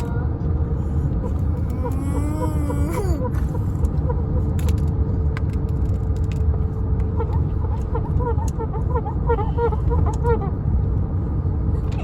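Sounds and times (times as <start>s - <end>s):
constant hum: 0.0s - 12.0s
truck driving rumble: 0.0s - 12.0s
drawn-out whining cry: 1.3s - 4.4s.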